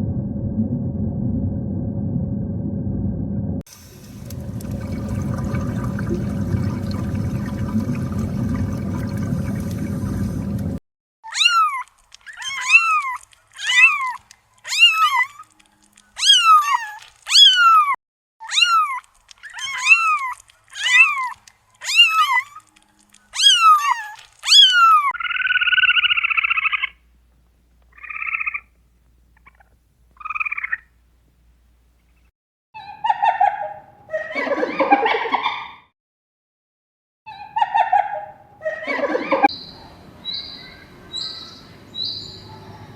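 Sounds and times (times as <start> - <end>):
steady noisy rumble: 0.0 - 10.8
animal calling high: 11.2 - 15.5, 16.2 - 22.7, 23.3 - 27.0.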